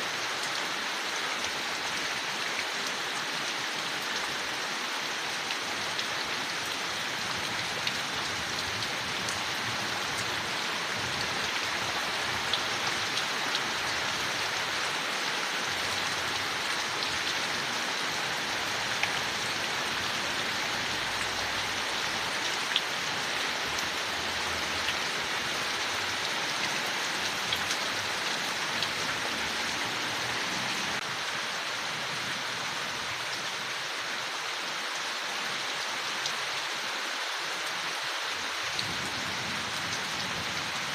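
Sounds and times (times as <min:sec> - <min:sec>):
rain falling on leaves: 0:00.0 - 0:40.9.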